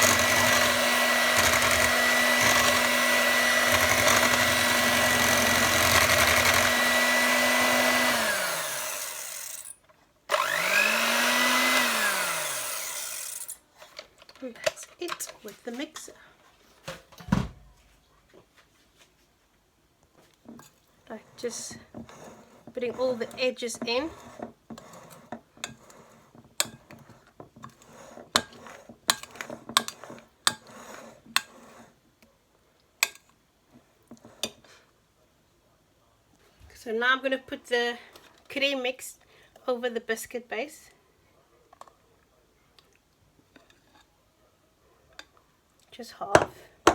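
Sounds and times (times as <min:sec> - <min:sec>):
utensil scraping a mixing bowl: 0:00.0 - 0:09.4, 0:20.6 - 0:32.0
electric hand mixer motor: 0:00.0 - 0:09.7, 0:10.3 - 0:13.6.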